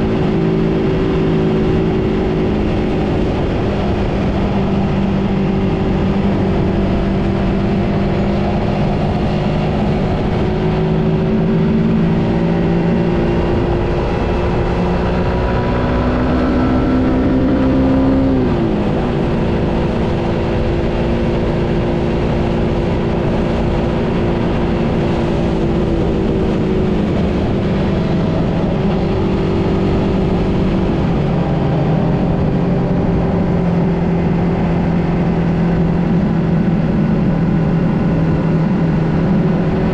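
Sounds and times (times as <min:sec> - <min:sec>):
motorcycle engine riding along: 0:00.0 - 0:39.9.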